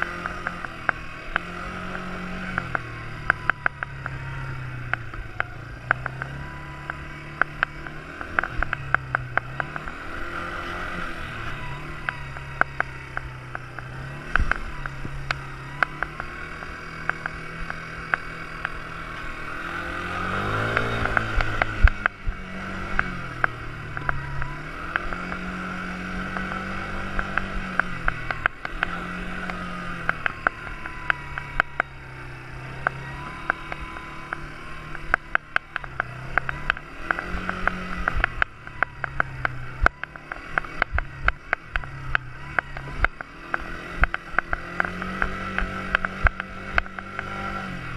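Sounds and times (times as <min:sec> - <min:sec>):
sharp clicks and knocks: 0:00.0 - 0:19.3, 0:19.9 - 0:32.0, 0:32.7 - 0:47.8
quad bike engine revving: 0:00.0 - 0:47.9.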